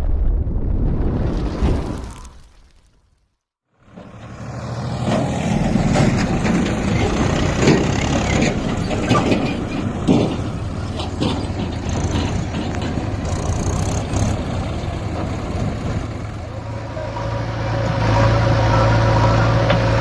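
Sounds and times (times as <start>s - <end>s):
diesel tractor engine under load: 3.8s - 20.0s.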